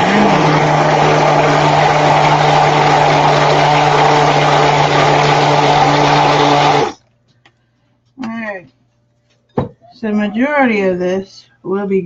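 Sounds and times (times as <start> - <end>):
stick blender running: 0.0 - 7.0.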